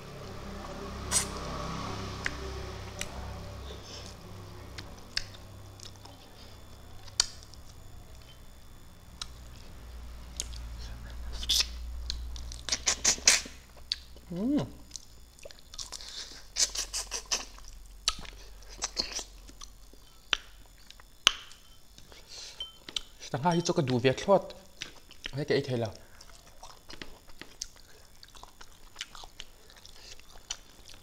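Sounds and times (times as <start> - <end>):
wet chewing: 4.8 - 6.2, 11.5 - 21.4, 24.5 - 25.4, 26.1 - 31.0
lip smacks: 11.4 - 14.1, 14.9 - 19.7
man humming: 14.3 - 14.8.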